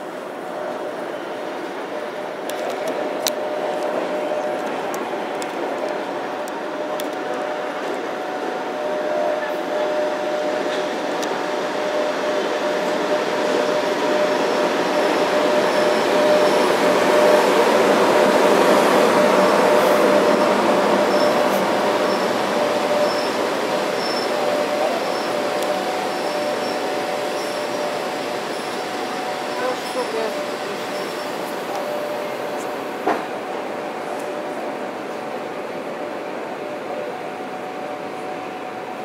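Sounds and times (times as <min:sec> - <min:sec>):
electric train rumbling with whine: 0:00.0 - 0:39.0.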